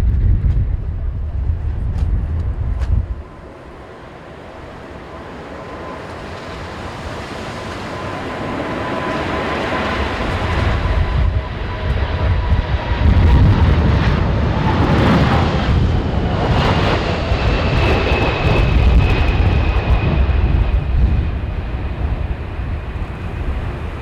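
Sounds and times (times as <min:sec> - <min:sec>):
jet engine rumble: 0:00.0 - 0:24.0
wind buffeting microphone: 0:00.0 - 0:24.0.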